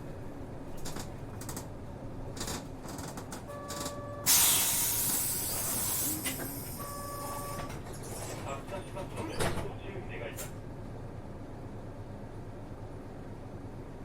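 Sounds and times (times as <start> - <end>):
bus chime: 3.4 - 7.9
compressed air hiss: 4.3 - 6.7.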